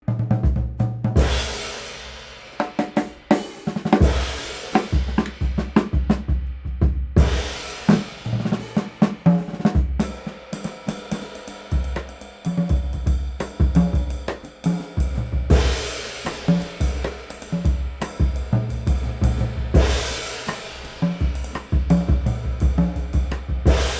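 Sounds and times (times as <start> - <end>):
drum kit groove: 0.0 - 23.9
crash cymbal: 19.4 - 21.8, 23.5 - 23.9.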